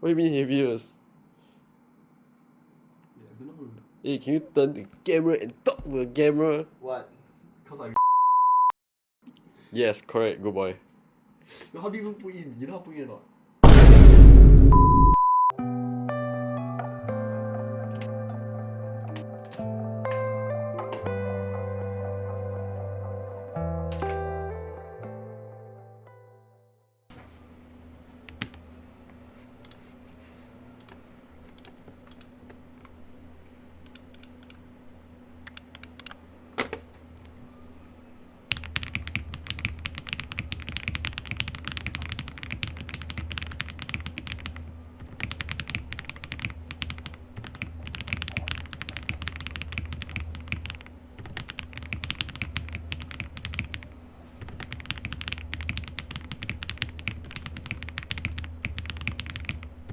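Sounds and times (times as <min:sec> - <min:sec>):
steady low hum: 0:13.6 - 0:15.2, 0:27.4 - 0:59.9
mechanical keyboard typing: 0:38.5 - 0:59.9.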